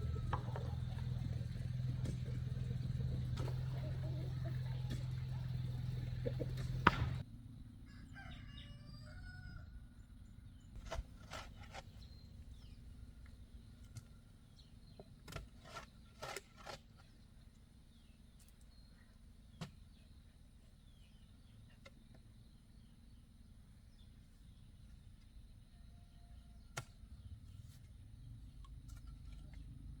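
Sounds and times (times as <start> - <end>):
motor running: 0.0 - 7.2
faint rooster crowing: 7.8 - 10.0, 25.6 - 27.1.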